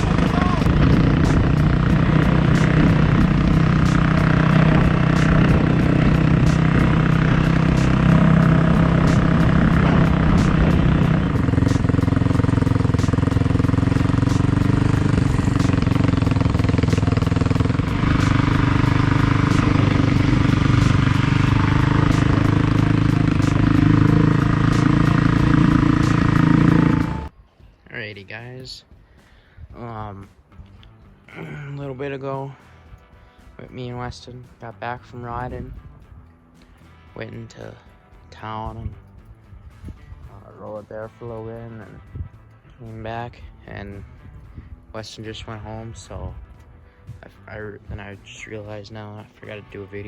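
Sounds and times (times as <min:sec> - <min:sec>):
wind rush: 0:00.0 - 0:26.9
dirt bike engine running: 0:00.0 - 0:27.3.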